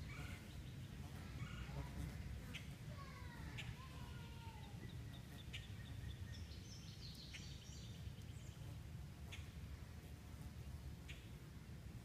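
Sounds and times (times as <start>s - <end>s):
songbirds singing: 0.0s - 9.8s, 10.5s - 12.0s.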